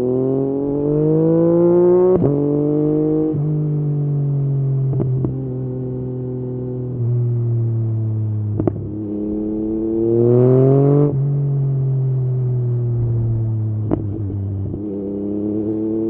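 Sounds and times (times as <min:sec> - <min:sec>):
motorcycle engine revving: 0:00.0 - 0:03.8, 0:08.3 - 0:16.0.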